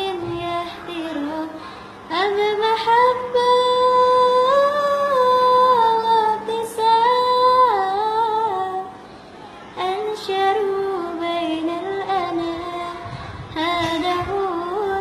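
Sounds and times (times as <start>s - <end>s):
child singing melismatic melody: 0.0s - 9.0s, 9.8s - 15.0s.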